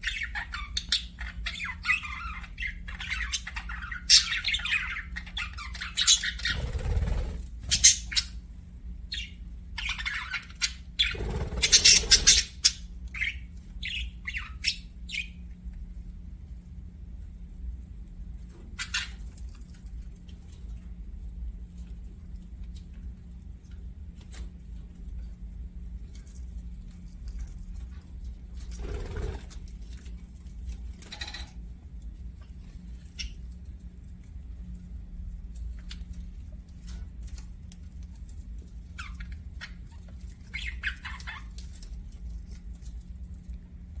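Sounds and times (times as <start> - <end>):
budgerigars chirping: 0.0 - 8.4, 9.1 - 15.4.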